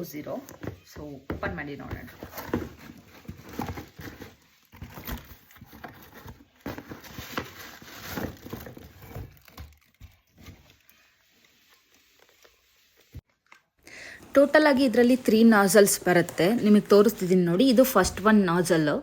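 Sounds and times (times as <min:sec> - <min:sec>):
packaging rustling and crinkling: 0:01.9 - 0:13.7.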